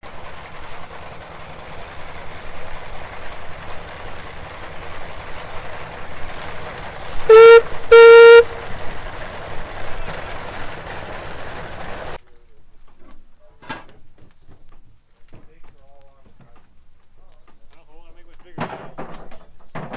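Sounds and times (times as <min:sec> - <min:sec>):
steam engine running: 0:00.0 - 0:12.2
loud steam whistle: 0:07.2 - 0:08.8.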